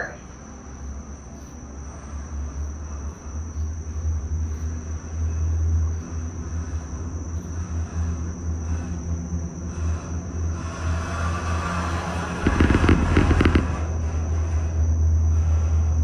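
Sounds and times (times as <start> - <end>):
gondola cabin rumbling: 9.1 - 15.2.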